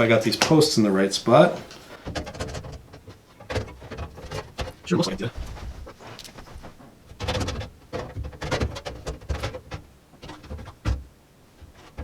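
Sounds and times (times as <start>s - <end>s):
computer hardware clicking and knocking: 7.2s - 11.0s.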